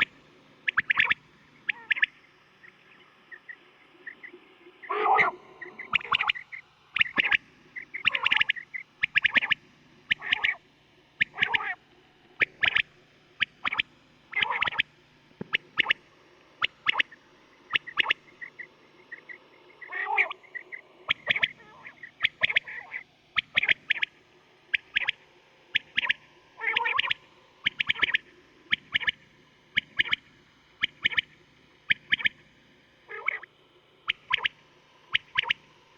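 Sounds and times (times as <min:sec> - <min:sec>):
quail calling: 0:00.0 - 0:10.6, 0:11.2 - 0:11.8, 0:12.4 - 0:14.9, 0:15.5 - 0:16.0, 0:16.6 - 0:24.1, 0:24.7 - 0:29.2, 0:29.8 - 0:30.2, 0:30.8 - 0:31.3, 0:31.9 - 0:32.4, 0:33.1 - 0:33.5, 0:34.1 - 0:35.6.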